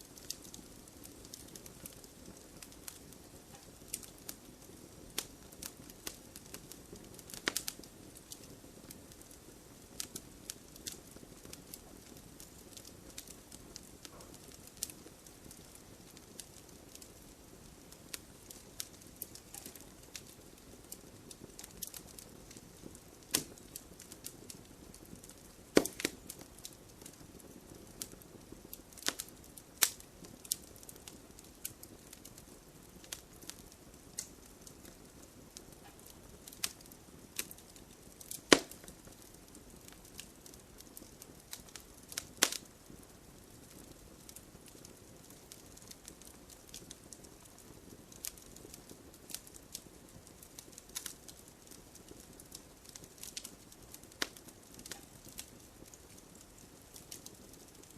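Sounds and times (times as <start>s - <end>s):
campfire wood crackling and popping: 0.0s - 57.9s
soft rustle of flames: 0.0s - 57.9s.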